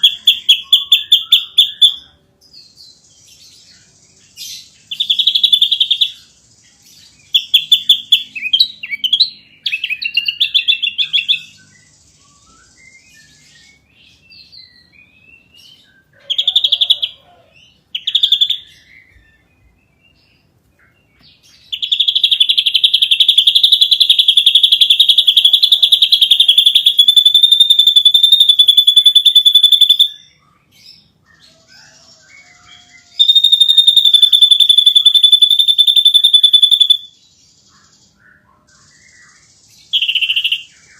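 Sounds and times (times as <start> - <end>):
bird whistled phrases: 0.0 - 2.2, 21.8 - 30.4, 32.4 - 37.1, 39.9 - 40.9.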